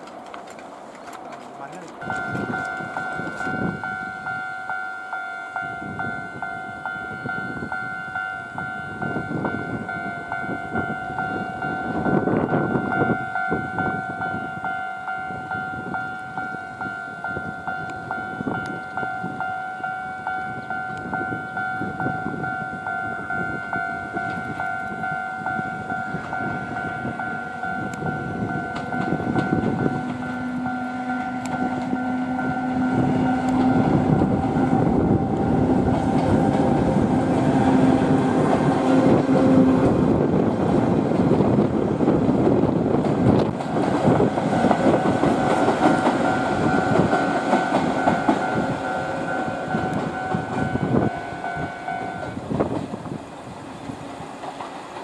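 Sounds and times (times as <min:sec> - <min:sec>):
level-crossing alarm ringing: 0:02.0 - 0:40.3, 0:43.8 - 0:52.4
train wheels clattering over rails: 0:25.6 - 0:55.0.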